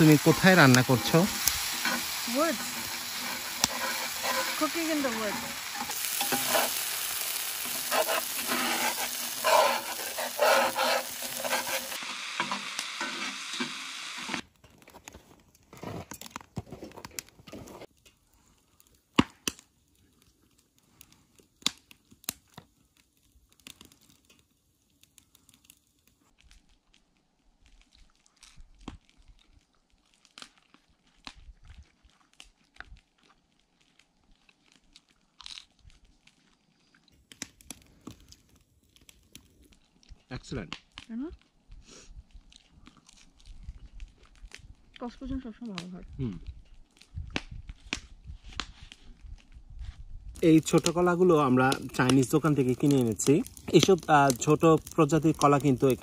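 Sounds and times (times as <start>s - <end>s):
metal spatula scraping: 0.0s - 14.3s
curry sizzling in a skillet: 0.0s - 14.4s, 50.4s - 56.0s.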